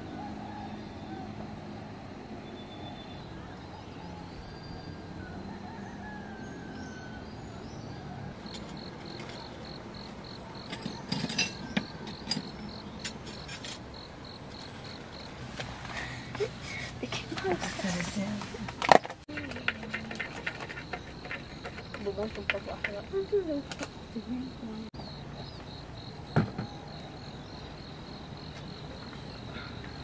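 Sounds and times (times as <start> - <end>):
sharp clicks and knocks: 18.7 - 24.0.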